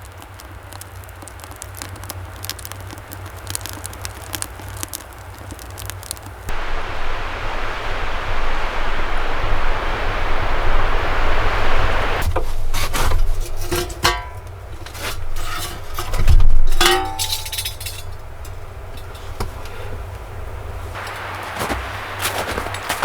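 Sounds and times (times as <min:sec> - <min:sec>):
steady rushing noise: 0:06.3 - 0:12.4, 0:20.7 - 0:23.0
metallic clanks and knocks: 0:13.5 - 0:18.2.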